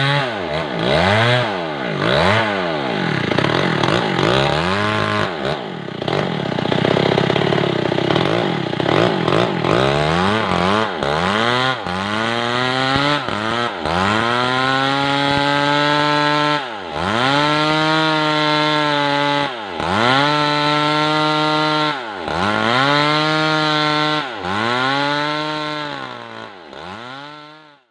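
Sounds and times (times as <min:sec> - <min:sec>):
chainsaw cutting log: 0:00.0 - 0:27.9.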